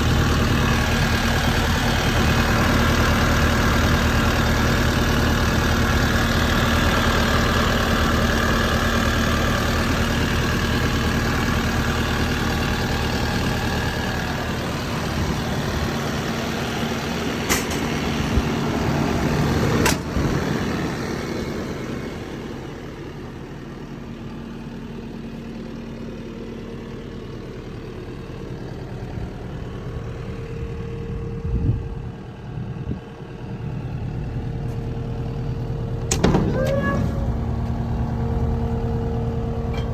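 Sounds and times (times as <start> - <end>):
diesel engine running: 0.0 - 39.9
thump: 36.1 - 37.8.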